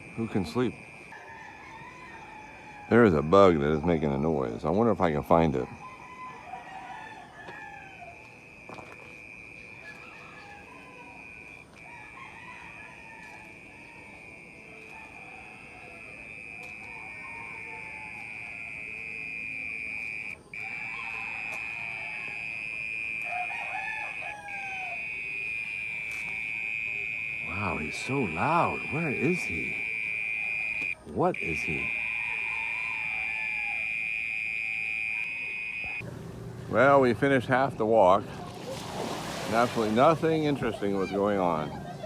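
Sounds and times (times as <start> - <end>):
roosters crowing and clucking: 1.0 - 3.1, 5.5 - 8.4, 9.6 - 19.0, 20.4 - 25.4, 31.7 - 33.9, 38.2 - 42.0
insect buzzing: 25.0 - 31.0, 33.2 - 36.1.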